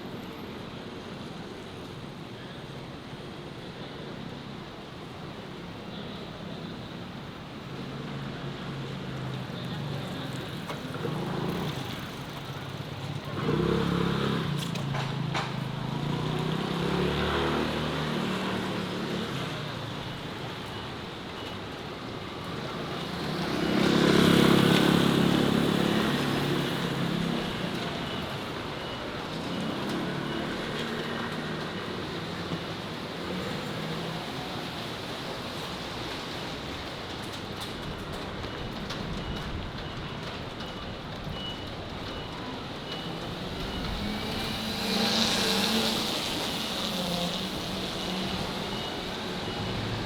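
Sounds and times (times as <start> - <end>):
motor vehicles passing: 8.6 - 20.3, 22.3 - 36.5, 42.4 - 50.0.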